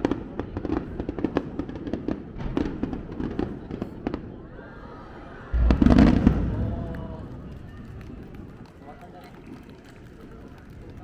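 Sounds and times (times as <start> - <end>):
fireworks crackling: 5.6 - 10.1.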